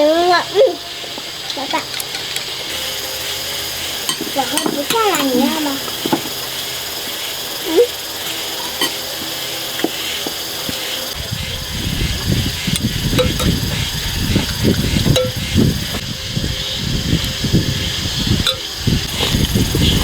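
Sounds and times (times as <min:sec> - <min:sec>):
steady hiss: 0:00.0 - 0:20.0
chopsticks and bowls clicking: 0:04.0 - 0:06.4, 0:08.2 - 0:10.8, 0:12.7 - 0:13.6
rough low rumble: 0:11.1 - 0:20.0.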